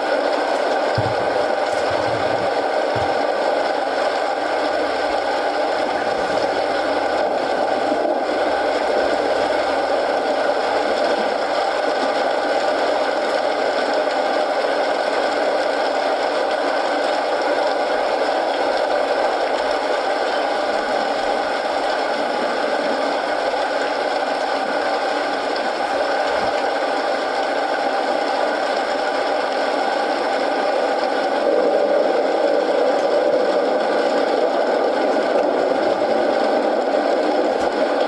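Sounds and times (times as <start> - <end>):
wood fire crackling: 0.0 - 12.2
steady rain: 0.0 - 38.0.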